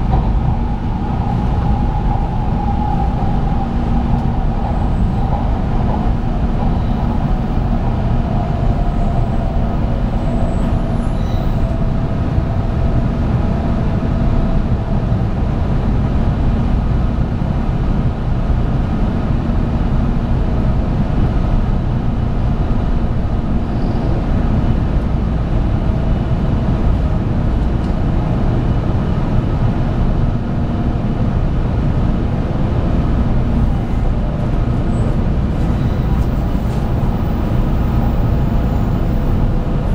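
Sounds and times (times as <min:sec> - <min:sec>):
train wheels rumbling on track: 0:00.0 - 0:39.9.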